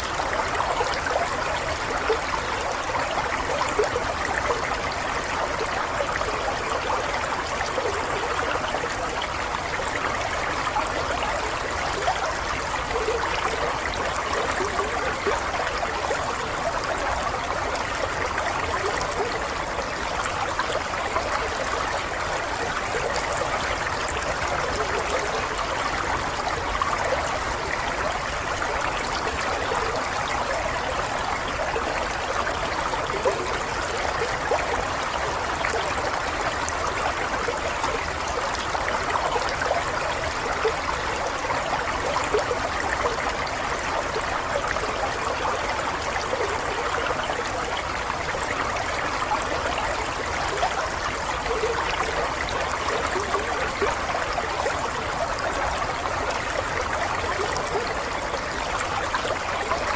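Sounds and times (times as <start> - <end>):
stream flowing over stones: 0.0 - 59.9.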